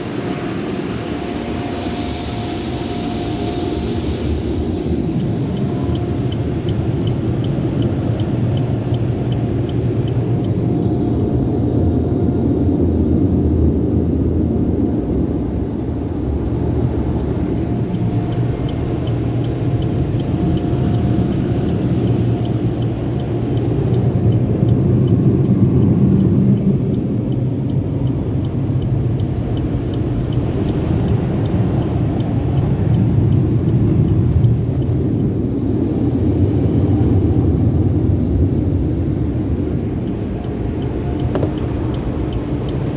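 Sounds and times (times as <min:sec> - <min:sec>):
car wash equipment rumbling: 0:00.0 - 0:42.9
faint regular ticking: 0:00.1 - 0:11.5, 0:16.4 - 0:36.6, 0:38.8 - 0:42.9.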